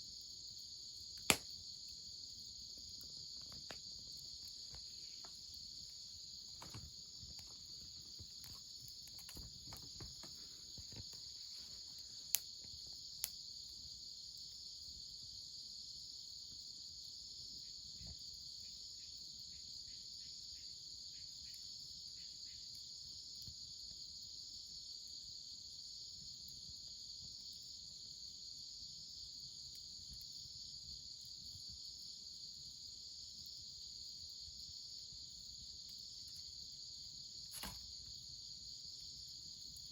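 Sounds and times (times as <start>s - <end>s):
insects chorus: 0.0s - 39.9s
sharp pops: 1.2s - 1.5s, 37.5s - 37.9s.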